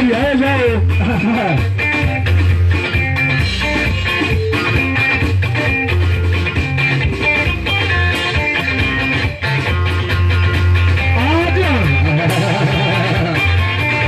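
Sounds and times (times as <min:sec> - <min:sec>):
guitar: 0:00.0 - 0:14.0
heavy bass line: 0:00.0 - 0:14.0
live band music: 0:00.0 - 0:14.0
steady drum beat: 0:00.0 - 0:14.0.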